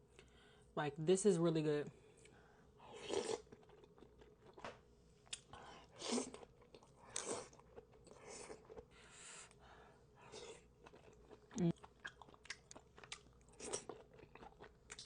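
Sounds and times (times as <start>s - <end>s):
person chewing with mouth smacks: 10.3s - 15.0s.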